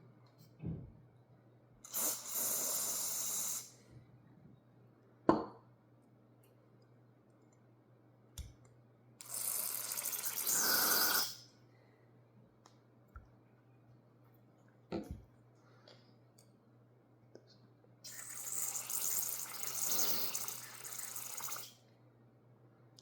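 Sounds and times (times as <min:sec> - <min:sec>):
aerosol can spraying: 0:01.9 - 0:03.7.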